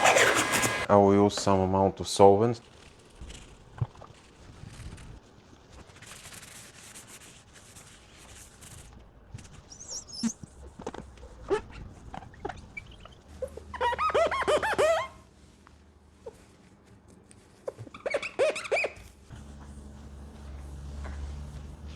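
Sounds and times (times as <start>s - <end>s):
cloth scraping: 0.0s - 0.9s, 19.3s - 21.9s
cloth squeaking on surface: 0.0s - 0.9s, 17.7s - 19.4s
solvent hiss: 19.3s - 21.9s.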